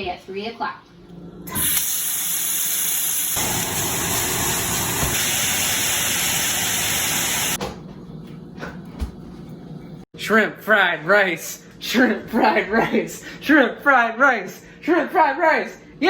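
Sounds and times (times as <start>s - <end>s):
loud steady hiss: 1.7s - 7.6s.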